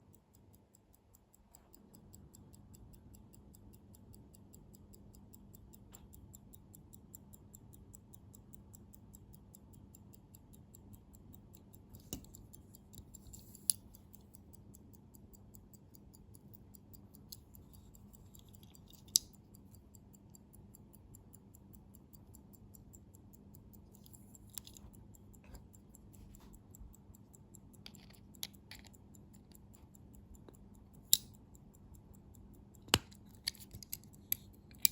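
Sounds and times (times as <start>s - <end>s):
pocket watch ticking: 0.0s - 34.9s
sharp handling clicks: 11.9s - 14.5s, 17.2s - 19.7s, 24.0s - 25.8s, 27.5s - 34.9s.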